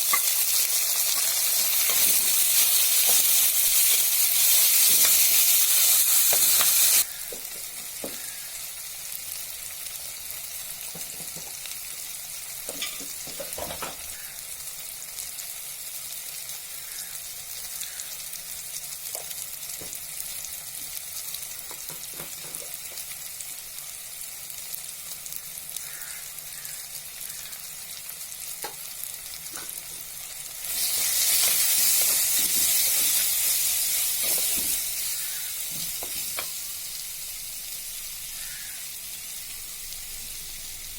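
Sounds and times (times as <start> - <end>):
spoon scraping a pan: 0.0 - 7.0, 30.7 - 36.5
food sizzling in a pan: 0.0 - 40.9.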